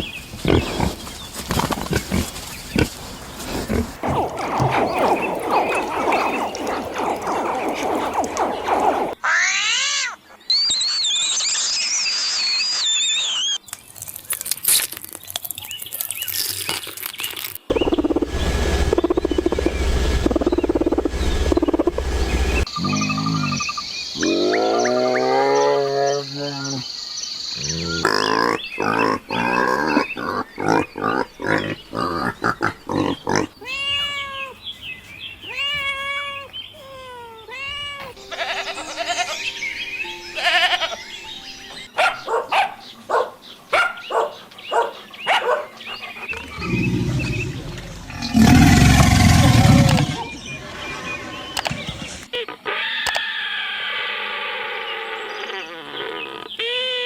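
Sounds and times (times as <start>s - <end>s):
loud rough animal call: 46.3s - 50.8s.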